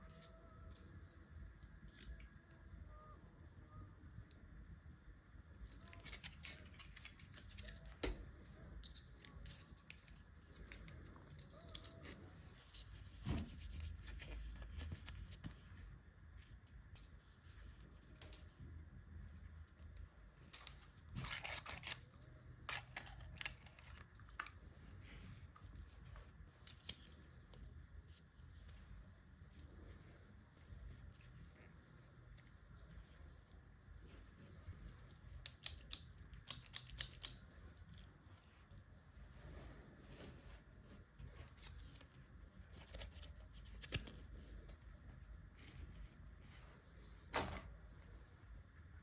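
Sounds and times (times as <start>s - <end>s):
packaging crinkles: 5.8s - 7.9s.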